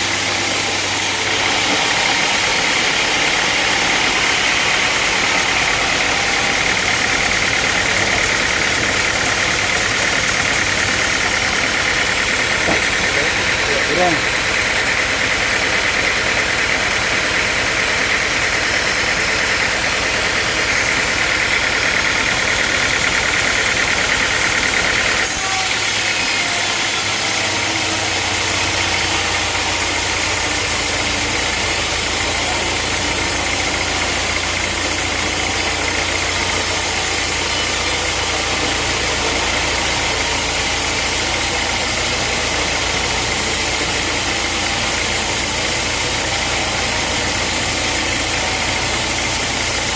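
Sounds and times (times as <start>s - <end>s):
sawmill engine running: 0.0s - 49.9s.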